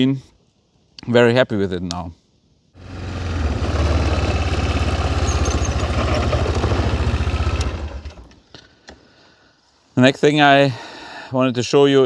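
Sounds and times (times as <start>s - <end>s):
grease gun motor pulsing: 3.0s - 8.3s.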